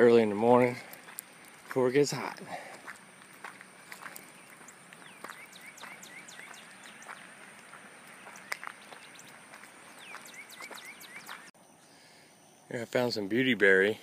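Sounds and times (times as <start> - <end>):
bird singing falling and rising notes: 3.0 - 12.7
high bird chirps: 3.9 - 12.7.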